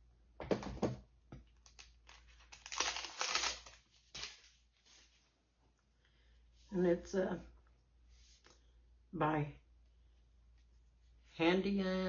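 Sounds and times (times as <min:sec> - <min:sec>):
packaging crinkling and rustling: 0:01.5 - 0:05.0.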